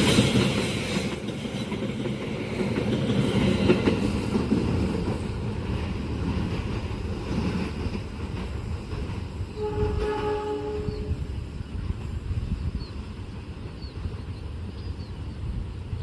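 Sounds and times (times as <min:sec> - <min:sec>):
train rumbling and clattering past: 0:00.0 - 0:16.0
train horn blast: 0:09.6 - 0:11.4.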